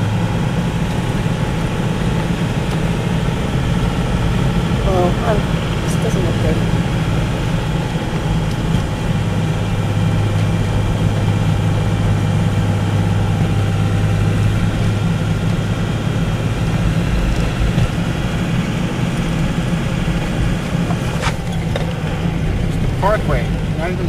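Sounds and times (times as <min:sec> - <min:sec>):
car engine droning inside cabin: 0:00.0 - 0:24.0.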